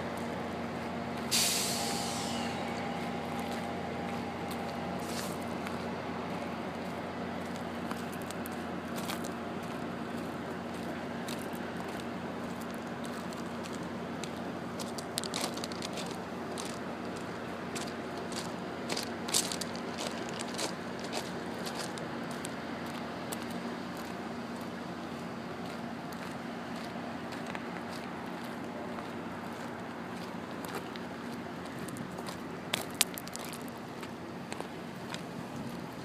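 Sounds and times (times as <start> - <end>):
train cars mechanical hum: 0.0 - 36.0
hiss of released air: 1.3 - 3.7, 5.0 - 5.5.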